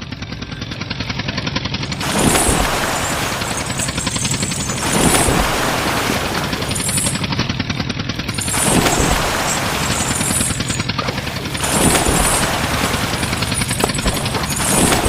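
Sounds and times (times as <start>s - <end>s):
tractor engine chugging: 0.0s - 15.0s.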